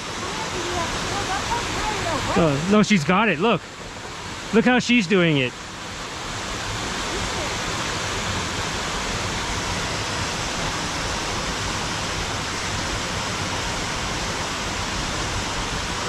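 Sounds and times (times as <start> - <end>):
falling water roaring: 0.0 - 16.0.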